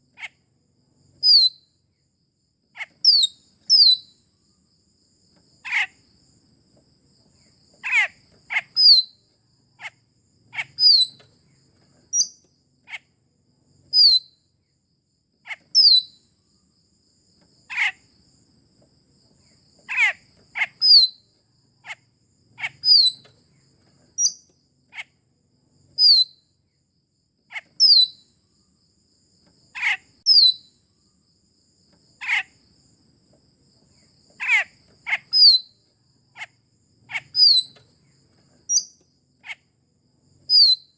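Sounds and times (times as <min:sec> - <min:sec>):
myna bird calls: 0:05.6 - 0:06.0, 0:07.8 - 0:09.1, 0:09.8 - 0:11.2, 0:17.7 - 0:18.0, 0:19.9 - 0:21.2, 0:22.6 - 0:23.3, 0:29.7 - 0:30.6, 0:34.4 - 0:35.6, 0:37.1 - 0:37.8.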